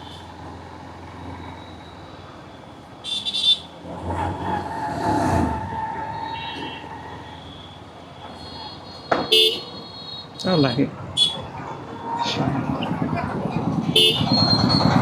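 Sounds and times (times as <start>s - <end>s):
street traffic: 0.0s - 15.0s
vehicle engine passing: 3.8s - 6.1s, 10.8s - 15.0s
horn toot: 13.9s - 14.3s.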